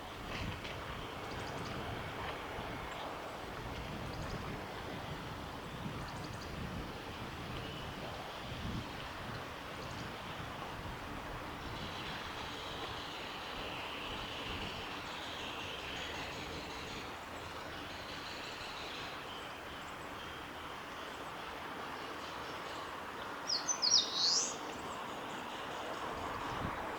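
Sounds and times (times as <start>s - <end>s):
steady background hiss: 6.6s - 26.9s
warbler singing: 23.5s - 26.1s.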